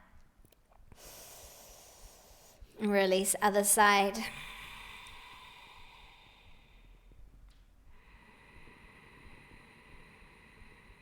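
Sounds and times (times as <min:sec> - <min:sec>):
slow breathing: 0:00.9 - 0:02.8, 0:04.3 - 0:11.0.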